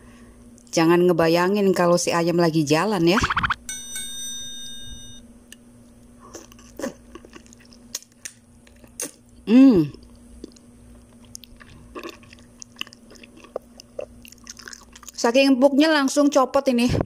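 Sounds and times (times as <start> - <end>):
chewing and biting: 6.3 - 9.2, 10.0 - 15.2
person humming: 9.5 - 10.0.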